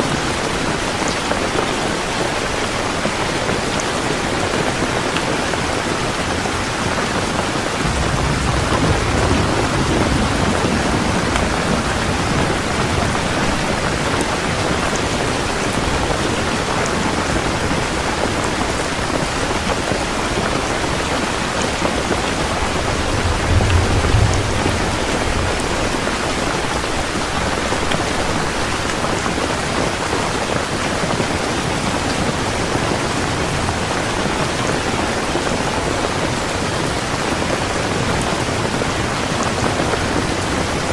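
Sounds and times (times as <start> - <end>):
heavy rain falling: 0.0 - 40.9
thunder rumbling: 4.4 - 30.2.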